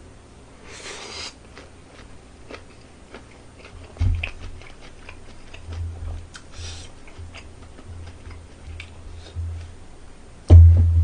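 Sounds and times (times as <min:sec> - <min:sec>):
biting and chewing food: 0:01.4 - 0:09.5
low thump: 0:10.5 - 0:11.0.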